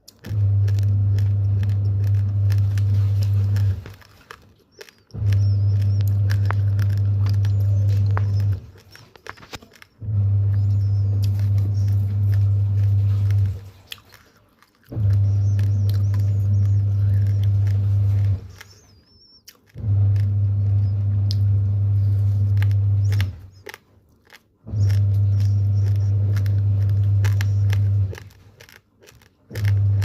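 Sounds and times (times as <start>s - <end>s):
raw rice being chewed: 0.0s - 30.0s
loud low hum: 0.3s - 4.0s, 5.1s - 8.8s, 10.0s - 13.6s, 14.9s - 18.6s, 19.8s - 23.5s, 24.7s - 28.2s.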